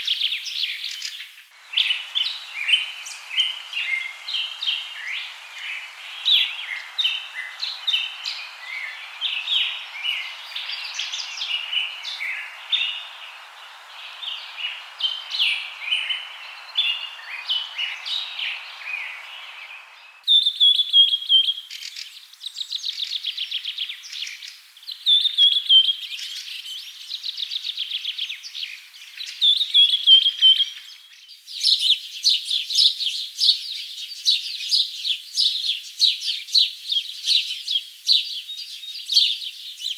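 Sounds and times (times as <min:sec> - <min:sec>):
birds chirping and calling: 0:00.0 - 0:22.0
steady hiss: 0:00.0 - 0:27.4
rapid bird trills and whistles: 0:00.0 - 0:39.9.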